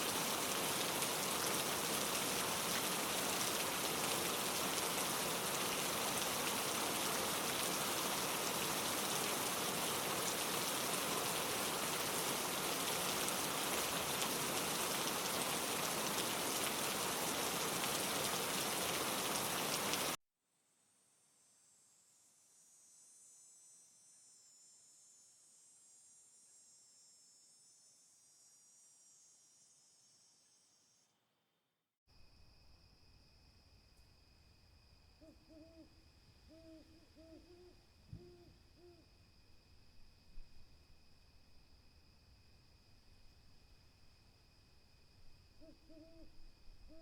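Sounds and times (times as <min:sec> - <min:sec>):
rain falling on surfaces: 0:00.0 - 0:20.2
insects chirring: 0:32.1 - 0:47.0.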